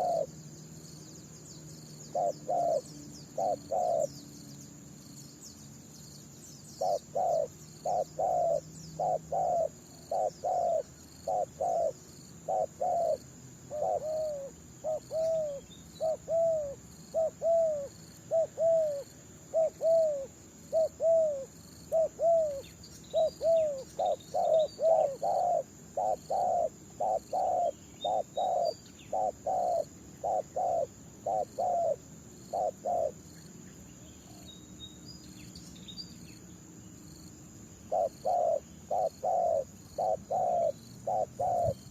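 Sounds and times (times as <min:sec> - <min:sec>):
doves cooing: 0:00.0 - 0:00.4, 0:02.1 - 0:04.1, 0:06.8 - 0:33.2, 0:37.9 - 0:41.9.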